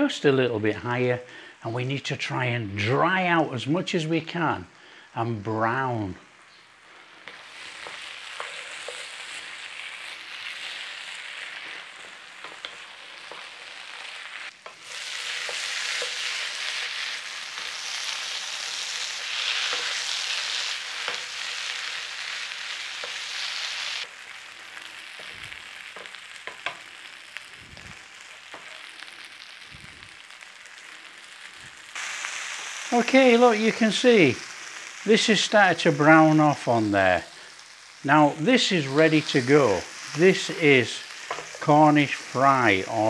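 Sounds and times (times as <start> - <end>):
food sizzling in a frying pan: 0.0 - 43.0
wooden spoon scraping a pan: 7.3 - 17.7, 41.0 - 41.7.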